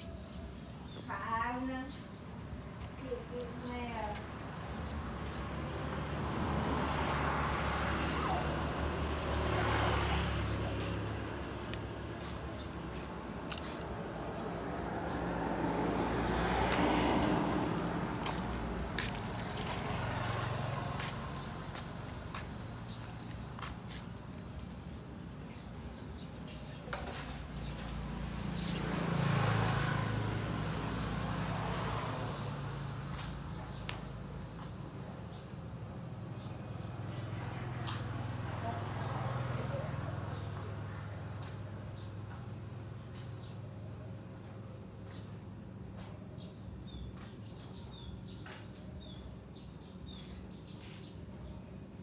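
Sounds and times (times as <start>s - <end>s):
vehicle passing by: 3.0s - 24.2s, 27.0s - 35.1s, 36.2s - 43.6s.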